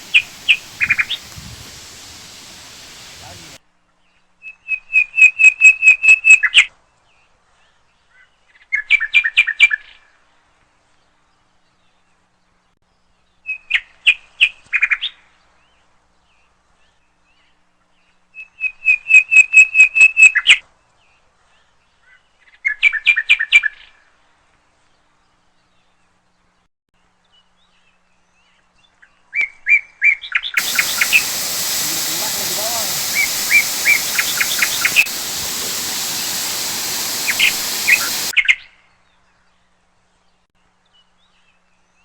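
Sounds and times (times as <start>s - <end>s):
bird singing whistled notes: 0.0s - 3.6s, 30.6s - 38.3s.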